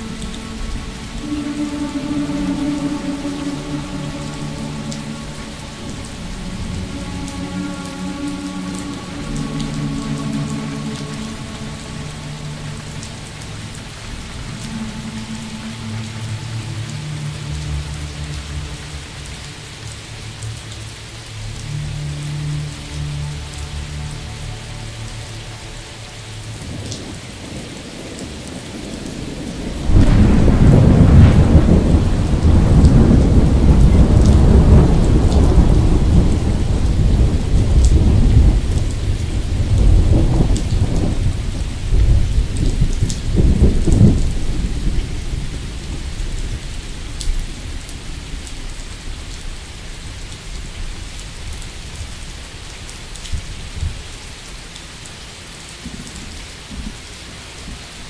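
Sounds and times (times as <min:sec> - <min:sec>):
steady rain: 0:00.0 - 0:58.0
rolling thunder: 0:26.7 - 0:48.7.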